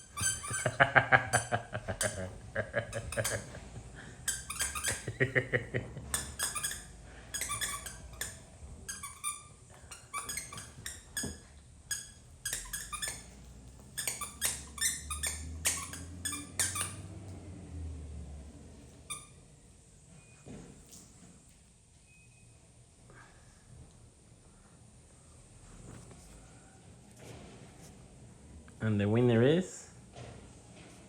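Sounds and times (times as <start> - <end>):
puppies yipping and squeaking: 0.0 - 5.3, 6.0 - 17.2.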